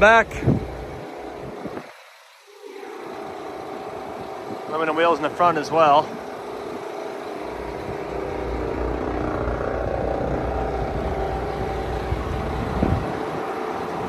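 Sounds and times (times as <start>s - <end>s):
diesel truck engine idling: 3.1s - 14.0s.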